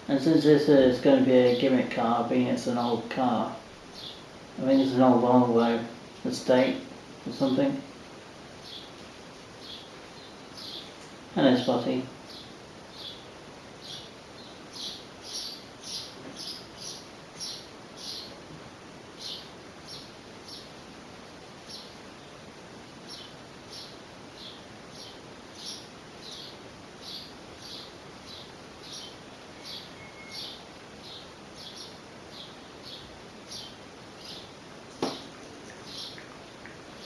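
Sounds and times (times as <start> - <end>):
small bird chirping: 3.9 - 4.3, 8.6 - 9.0, 9.6 - 11.0, 12.2 - 18.4, 19.1 - 20.8, 21.6 - 22.0, 23.0 - 37.0.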